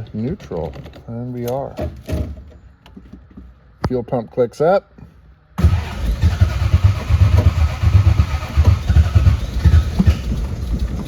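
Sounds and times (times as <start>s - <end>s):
car engine running unevenly: 5.6s - 11.0s.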